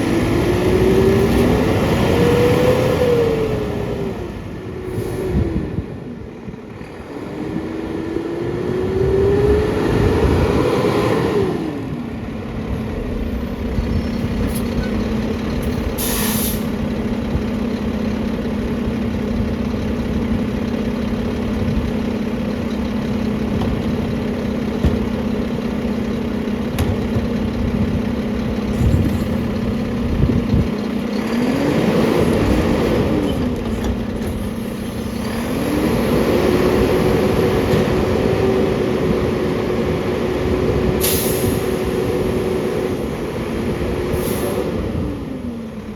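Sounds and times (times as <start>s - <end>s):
garbage truck diesel engine revving: 0.0s - 45.9s
air hiss: 16.0s - 16.8s.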